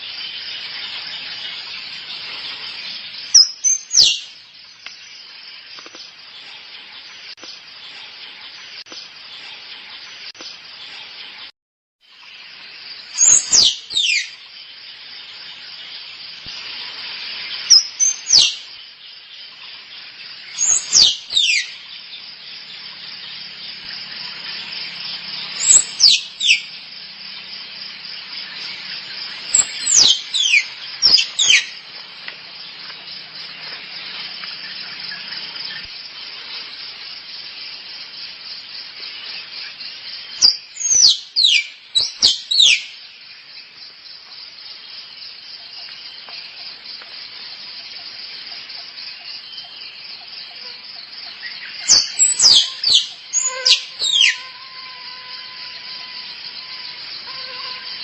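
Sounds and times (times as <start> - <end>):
insects chorus: 0.0 - 58.0
squirrel chirps: 25.5 - 26.7, 29.4 - 31.8, 51.8 - 54.5.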